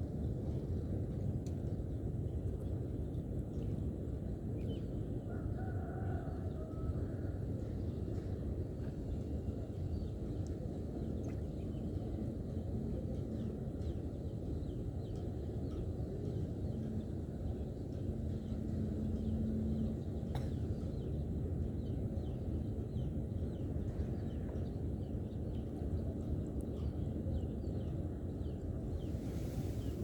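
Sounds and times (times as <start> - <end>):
low outdoor rumble: 6.2 - 30.0.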